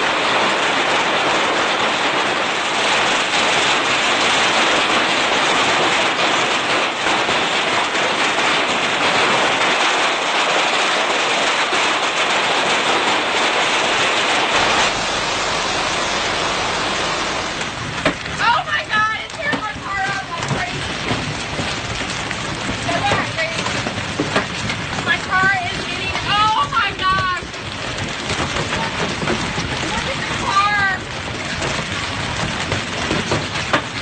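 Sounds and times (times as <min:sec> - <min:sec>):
hail and rain pelting surfaces: 0:00.0 - 0:34.0
low hum: 0:13.9 - 0:18.4.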